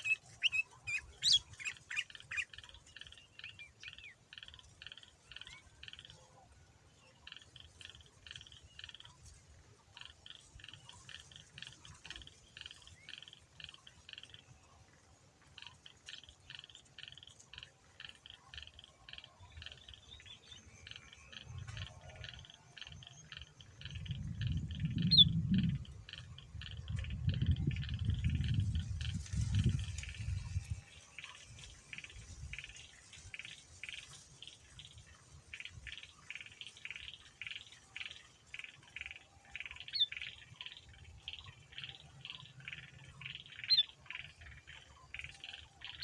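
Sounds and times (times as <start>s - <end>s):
bulbul singing chirps: 0.0s - 4.6s, 18.0s - 32.7s.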